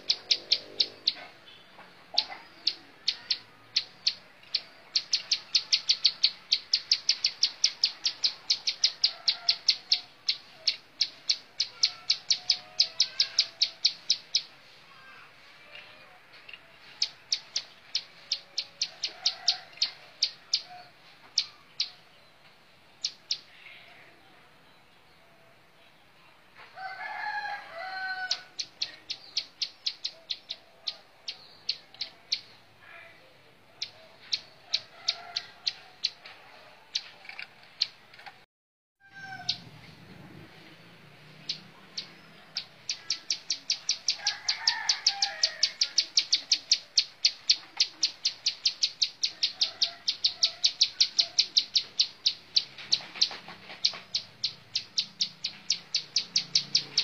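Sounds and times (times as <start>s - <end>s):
bird singing sharp ticking notes: 0.0s - 14.5s, 28.6s - 32.6s, 41.4s - 57.0s
bird warbled phrases: 41.9s - 57.0s.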